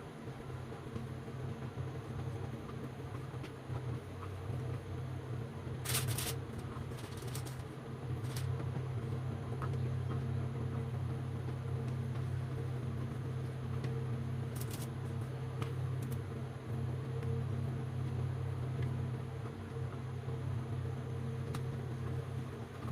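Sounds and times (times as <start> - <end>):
low mechanical hum: 0.0 - 22.9
short clicks and scrapes: 5.8 - 7.6, 14.6 - 14.9.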